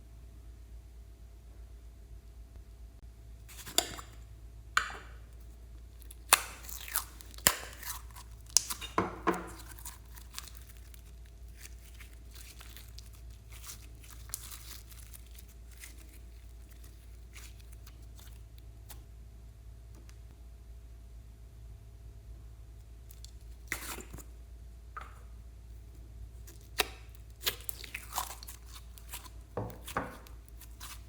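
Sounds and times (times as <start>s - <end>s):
slime tearing and crackling: 5.9s - 19.0s, 26.4s - 31.0s.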